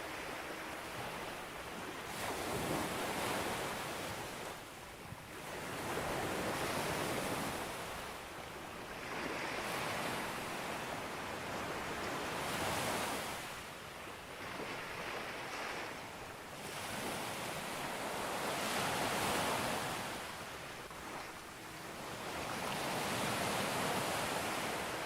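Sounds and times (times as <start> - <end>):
sea waves breaking on beach: 8.9 - 25.0.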